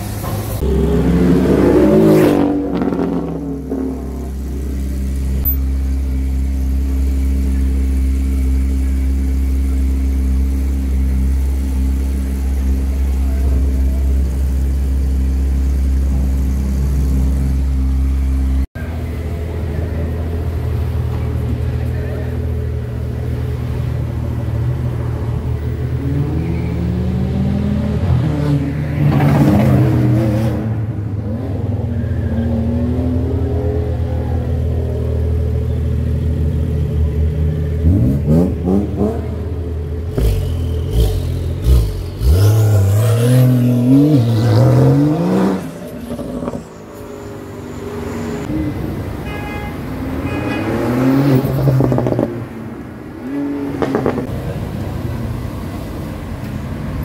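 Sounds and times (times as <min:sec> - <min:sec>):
car engines revving: 0:00.0 - 0:57.0
car accelerating through gears: 0:40.1 - 0:46.6.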